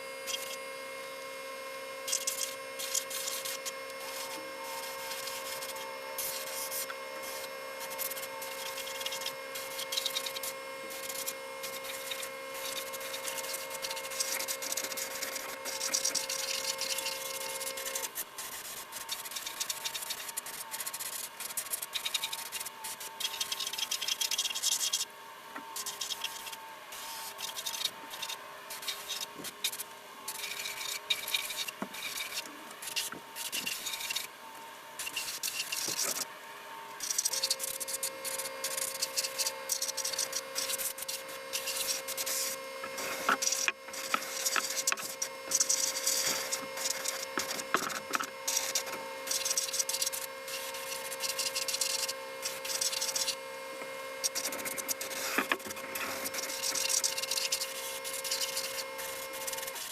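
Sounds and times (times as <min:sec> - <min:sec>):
steady hum: 0:00.0 - 0:59.9
hand scrubbing and scraping: 0:40.0 - 0:48.8.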